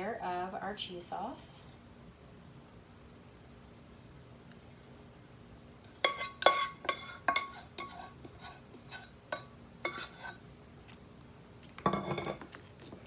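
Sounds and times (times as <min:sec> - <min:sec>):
metal spoon scraping a dish: 0:05.9 - 0:10.4, 0:11.9 - 0:12.6.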